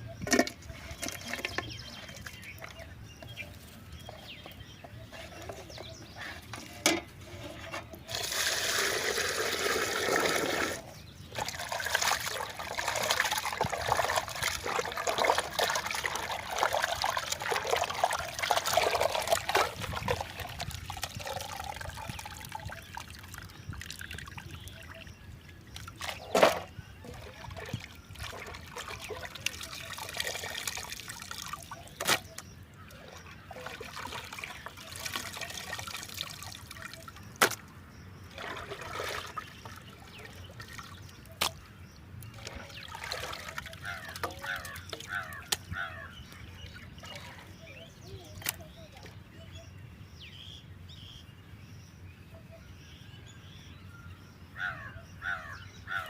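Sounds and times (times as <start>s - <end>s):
splashing and handling: 0.2s - 24.9s, 25.7s - 37.7s, 38.3s - 46.1s
water pouring and trickling: 0.2s - 37.6s, 38.2s - 41.6s, 42.2s - 49.2s.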